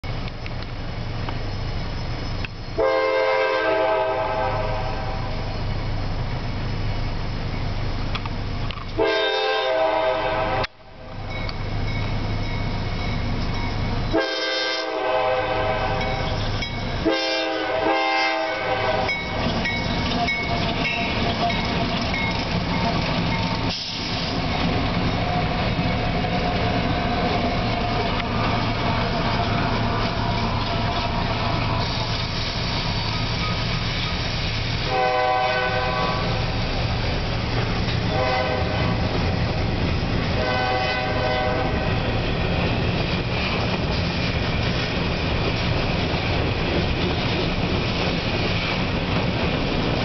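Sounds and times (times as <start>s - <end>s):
locomotive engine rumble: 0.0s - 50.0s
rail noise: 0.0s - 50.0s
locomotive horn blasts: 2.8s - 5.4s, 9.0s - 11.3s, 14.1s - 16.4s, 17.0s - 19.4s, 34.8s - 36.6s, 38.0s - 39.2s, 40.3s - 42.2s.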